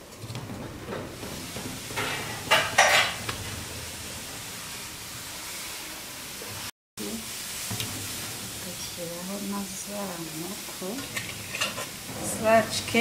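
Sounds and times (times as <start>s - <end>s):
utensil scraping cooking pan: 0.0s - 6.7s, 7.3s - 13.0s
food sizzling: 0.0s - 13.0s.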